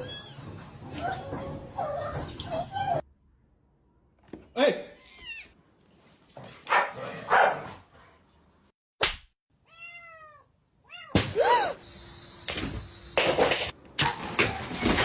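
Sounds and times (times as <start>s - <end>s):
cat meowing: 9.6s - 11.2s.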